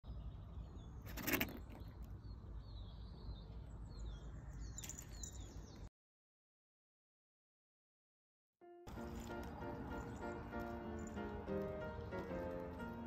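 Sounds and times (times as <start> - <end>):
songbirds chirping: 0.0 - 5.9, 8.9 - 13.0.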